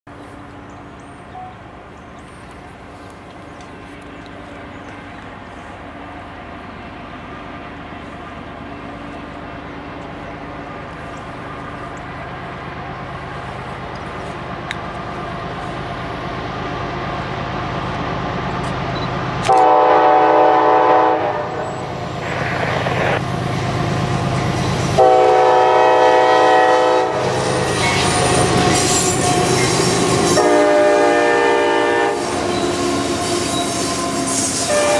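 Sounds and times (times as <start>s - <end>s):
locomotive engine rumble: 0.1s - 34.9s
locomotive air horn blasts: 19.4s - 21.8s, 24.9s - 34.9s.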